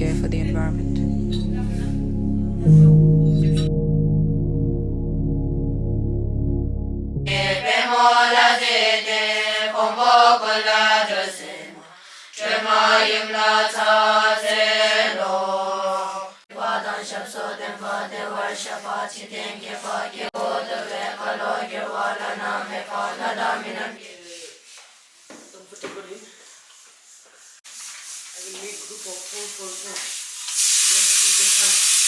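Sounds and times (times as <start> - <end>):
low held drone tone: 0.0 - 7.6
voices chanting in unison: 7.3 - 24.6.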